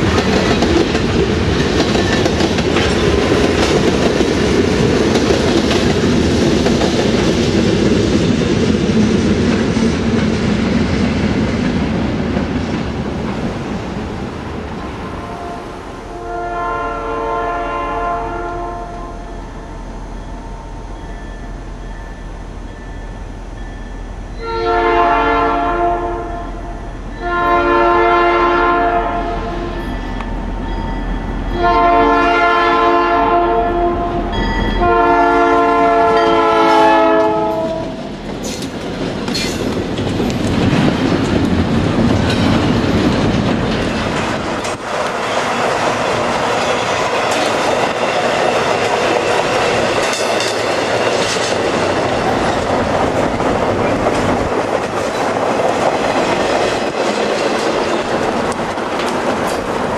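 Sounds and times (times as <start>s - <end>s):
train wheels on rails: 0.0s - 59.9s
locomotive air horn blasts: 15.2s - 19.4s, 24.4s - 29.8s, 31.5s - 38.0s.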